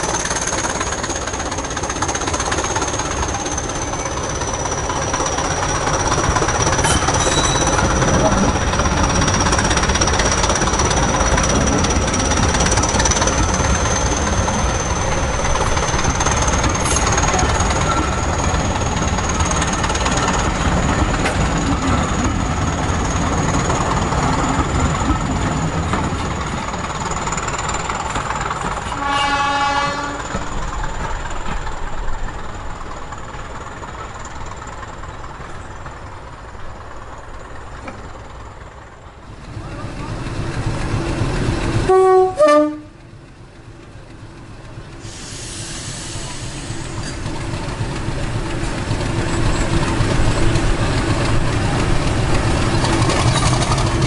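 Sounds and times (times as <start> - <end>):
train wheels clattering: 0.0 - 38.6, 40.3 - 54.0
train horn blast: 28.9 - 30.4, 41.8 - 43.0.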